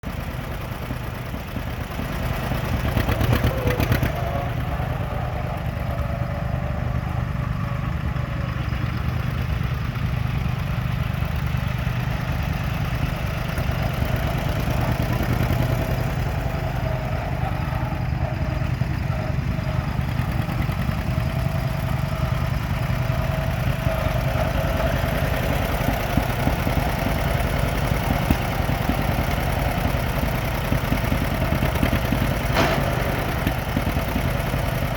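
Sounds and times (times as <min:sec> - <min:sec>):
tractor engine idling: 0:00.0 - 0:34.9.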